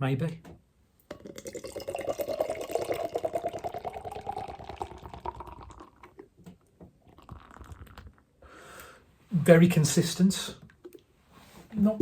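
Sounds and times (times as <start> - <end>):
liquid dripping: 1.0 - 8.3
beer pouring into a glass: 1.1 - 6.4, 7.0 - 8.2.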